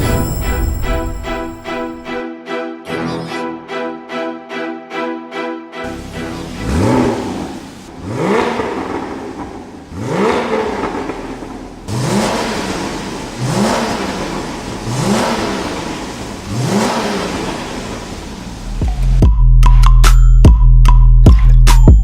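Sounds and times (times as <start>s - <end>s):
car engine revving: 5.8s - 19.3s.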